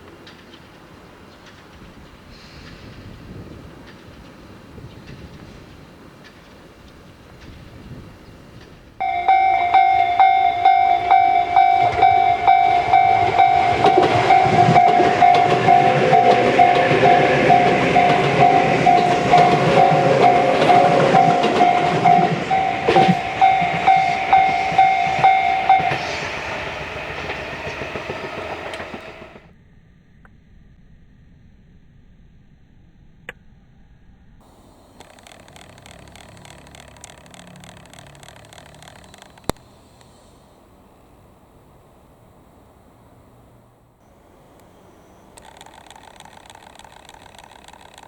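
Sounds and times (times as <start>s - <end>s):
train wheels clattering: 0.1s - 29.5s, 44.6s - 48.0s
pulsing electronic warning tone: 9.0s - 29.3s.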